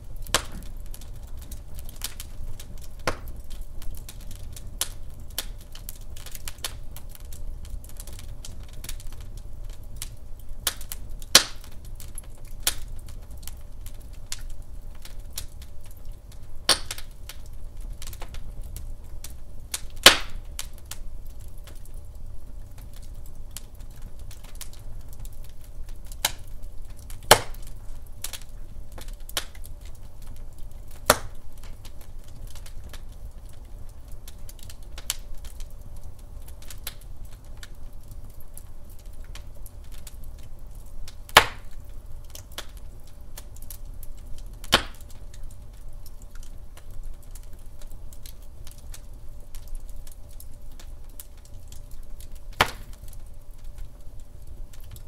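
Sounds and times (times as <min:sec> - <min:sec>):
wood fire crackling: 0:00.0 - 0:55.0
sharp fire pops: 0:00.1 - 0:21.9, 0:22.8 - 0:33.6, 0:41.0 - 0:42.8, 0:43.4 - 0:45.5, 0:50.8 - 0:53.9.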